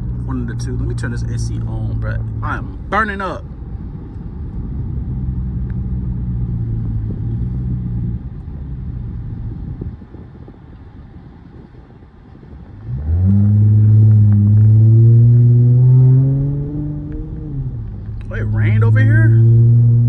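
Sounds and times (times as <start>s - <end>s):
car engine accelerating: 0.0s - 3.0s, 3.6s - 10.5s, 12.6s - 20.0s.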